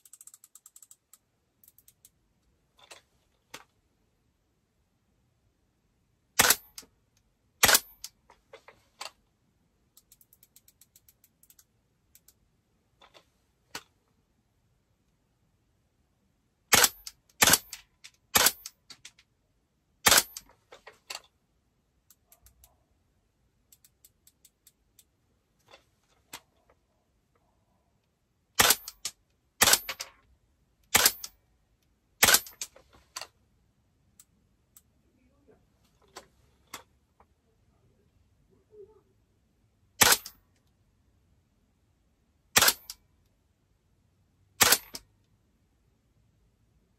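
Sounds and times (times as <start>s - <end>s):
scope turret clicks: 0.0s - 2.2s, 6.4s - 8.2s, 9.9s - 12.4s, 16.7s - 19.3s, 20.0s - 21.3s, 23.6s - 25.2s, 28.6s - 33.3s, 40.0s - 40.7s, 42.6s - 43.0s, 44.6s - 45.1s
airsoft rifle shots: 6.4s - 6.8s, 7.6s - 8.0s, 16.7s - 18.7s, 20.0s - 20.5s, 28.6s - 29.0s, 29.6s - 30.0s, 30.9s - 31.4s, 32.2s - 32.6s, 40.0s - 40.4s, 42.6s - 42.9s, 44.6s - 45.0s.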